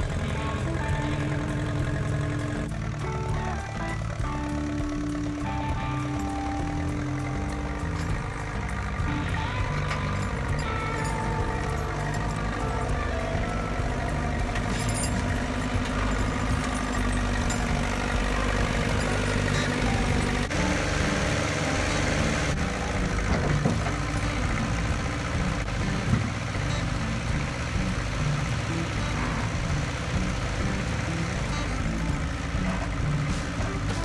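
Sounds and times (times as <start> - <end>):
tractor engine running: 0.0 - 34.0.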